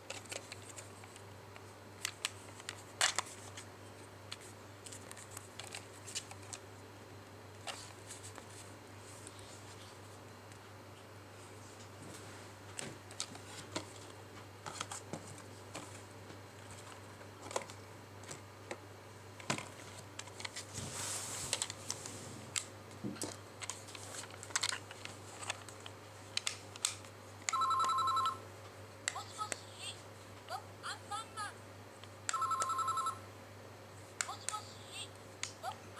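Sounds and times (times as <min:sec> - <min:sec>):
toy phone button clicks: 0:32.3 - 0:32.9.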